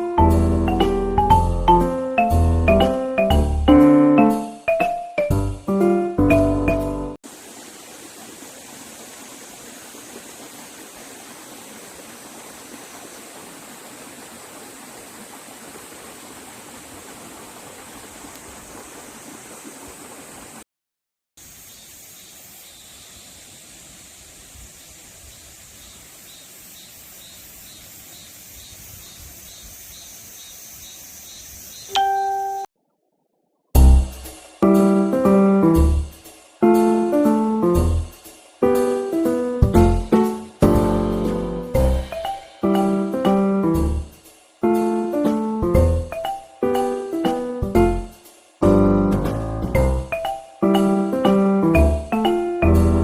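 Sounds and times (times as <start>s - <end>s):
stream water flowing: 7.2s - 20.6s
bell-like ding: 32.0s - 32.7s.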